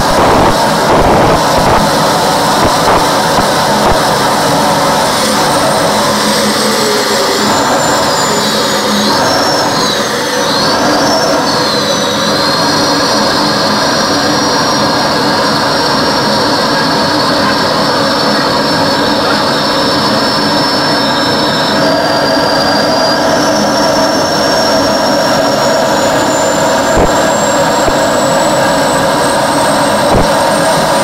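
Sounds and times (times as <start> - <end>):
jet engine roaring: 0.0 - 31.0
high whistle: 0.1 - 15.0, 19.8 - 28.6.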